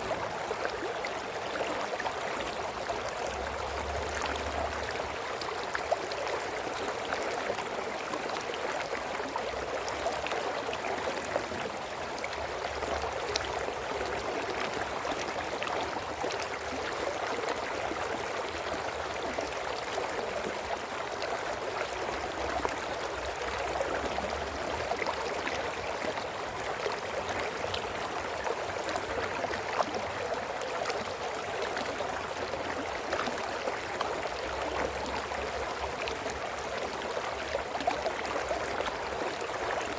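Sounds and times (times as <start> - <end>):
brook water babbling over rocks: 0.0 - 39.9.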